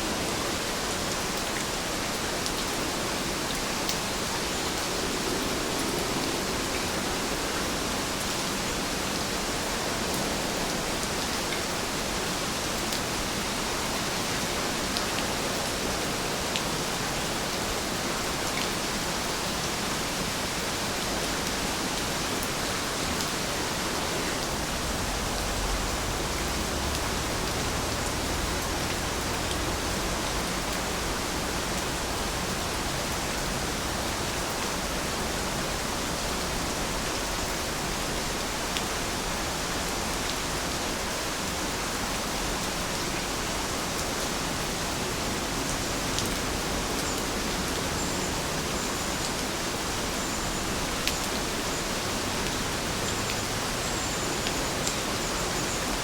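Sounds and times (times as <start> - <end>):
steady rain hiss: 0.0 - 56.0
faint raindrop ticks: 54.4 - 55.1.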